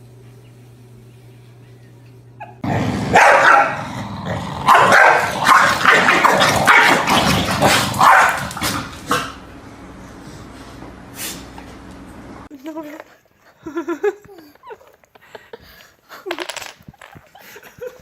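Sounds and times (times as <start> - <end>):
dog barking: 2.4 - 3.9, 4.6 - 9.4.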